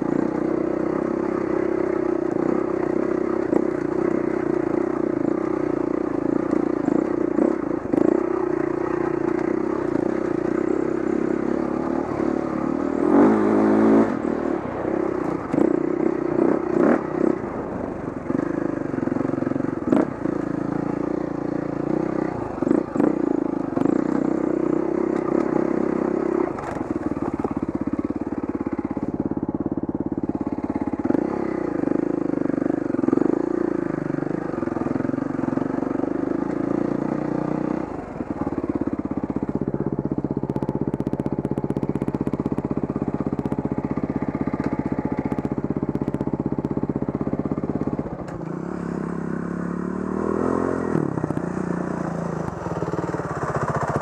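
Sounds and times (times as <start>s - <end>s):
dirt bike engine revving: 0.0s - 17.6s, 18.2s - 29.1s, 48.3s - 54.0s.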